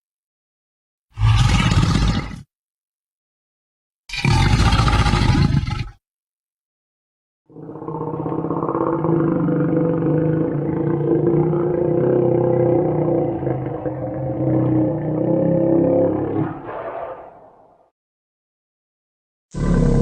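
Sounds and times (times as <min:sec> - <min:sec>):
creature low growl: 0:07.5 - 0:17.6, 0:19.6 - 0:20.0.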